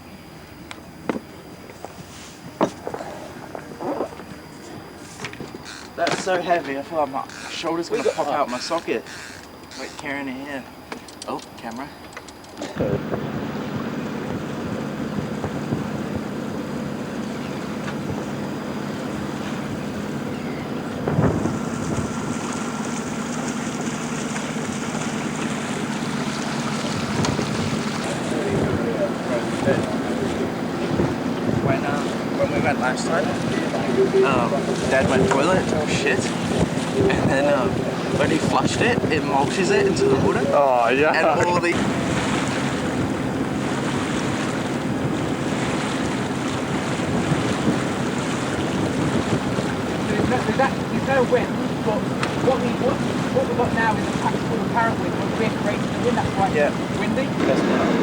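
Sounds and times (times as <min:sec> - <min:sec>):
boat engine drone: 0:00.0 - 0:58.0
wind buffeting microphone: 0:12.7 - 0:58.0
water rushing past hull: 0:12.9 - 0:58.0.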